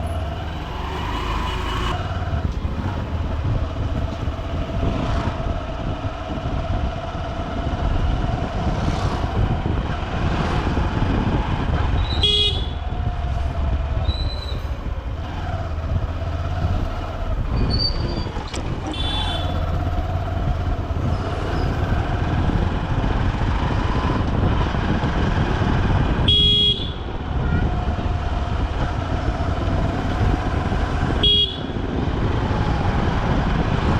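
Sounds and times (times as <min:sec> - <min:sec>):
motorcycle engine rumble: 0:00.0 - 0:33.9
vehicle horn toots: 0:12.1 - 0:12.8, 0:18.9 - 0:19.6, 0:26.3 - 0:27.1, 0:31.2 - 0:31.8.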